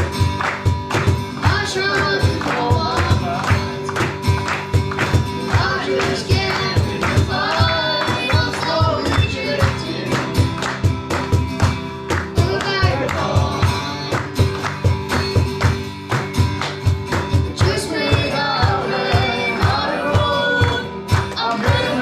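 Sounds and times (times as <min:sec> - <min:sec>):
live band playing: 0:00.0 - 0:22.0
steady drum beat: 0:00.0 - 0:22.0
person singing: 0:01.3 - 0:04.0, 0:05.4 - 0:10.4, 0:12.4 - 0:14.4, 0:17.5 - 0:22.0.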